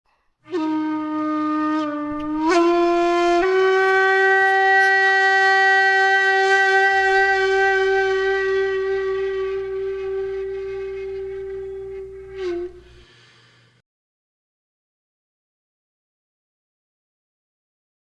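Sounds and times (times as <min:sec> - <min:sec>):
loud held horn note: 0:00.4 - 0:13.3.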